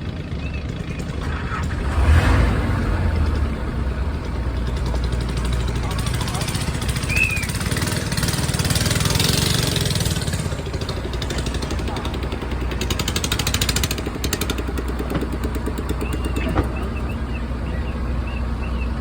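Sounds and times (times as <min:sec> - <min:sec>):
boat motor running: 0:00.0 - 0:19.0
rapid even pulsing: 0:01.2 - 0:18.2.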